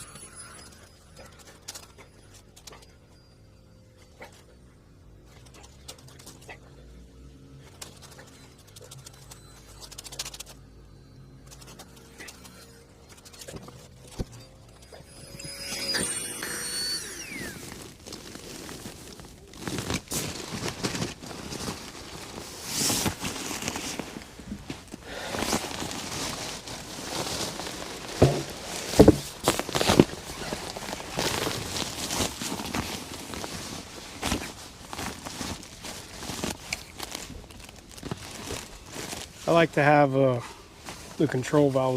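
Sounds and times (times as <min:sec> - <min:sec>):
handling rustling and scraping: 0:07.6 - 0:41.9
brief high squeak: 0:12.2 - 0:17.8
knocks: 0:28.2 - 0:29.2.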